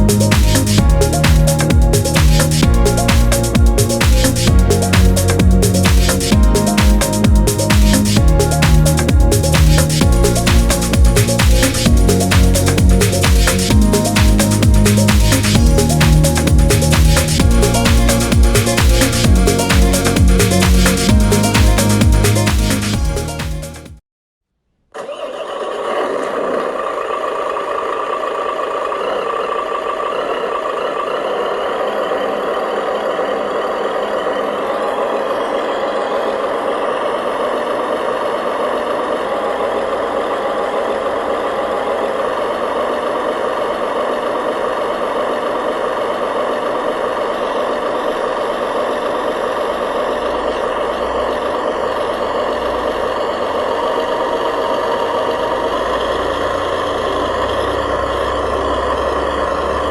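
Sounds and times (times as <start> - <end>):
model truck motor droning: 26.2 - 59.9.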